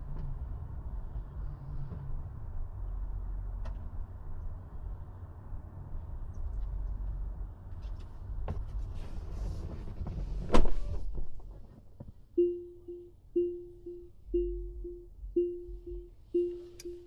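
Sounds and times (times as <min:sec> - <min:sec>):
engine and road noise: 0:00.0 - 0:17.0
pitched tone: 0:12.4 - 0:17.0.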